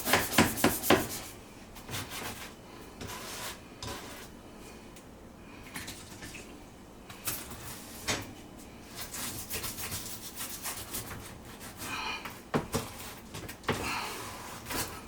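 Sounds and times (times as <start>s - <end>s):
hand scrubbing inside dishwasher: 0.0s - 4.3s.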